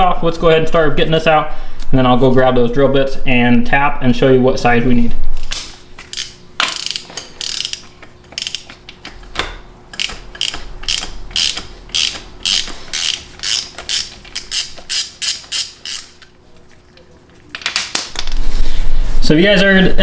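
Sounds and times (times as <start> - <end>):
ratchet wrench clicking: 6.1 - 9.2, 9.9 - 16.2.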